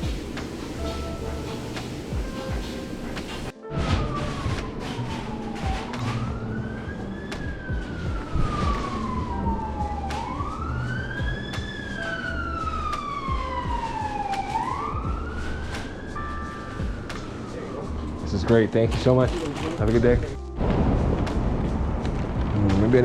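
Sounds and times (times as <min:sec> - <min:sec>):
siren wailing: 0:03.6 - 0:20.1.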